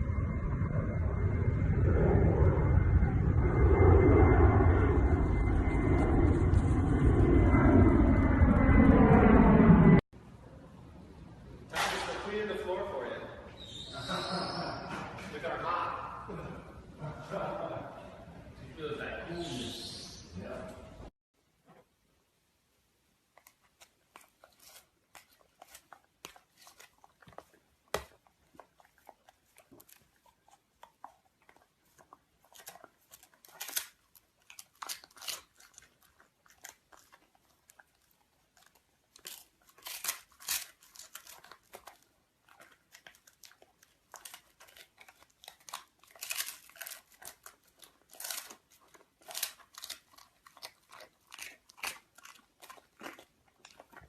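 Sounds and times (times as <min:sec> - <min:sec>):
puppy chewing and crunching: 0:23.2 - 0:54.0.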